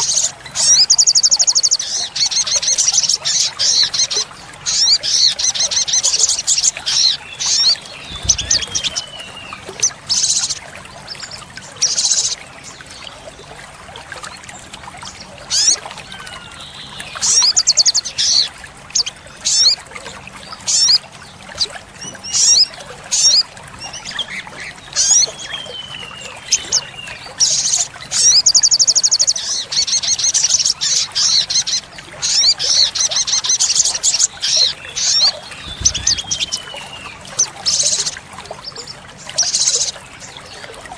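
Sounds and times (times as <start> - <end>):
bird chirps and trills: 0.0 - 13.2, 14.2 - 40.9
bird whistles gliding downward: 6.9 - 10.4, 32.3 - 38.2.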